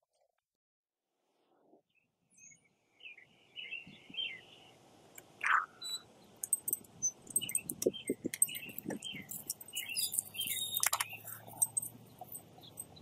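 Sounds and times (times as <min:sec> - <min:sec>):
birds chirping: 0:02.4 - 0:13.0.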